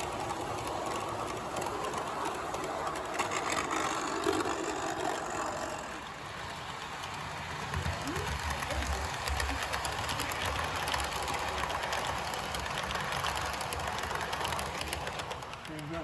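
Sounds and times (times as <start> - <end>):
model train motor and wheels: 0.0 - 16.0.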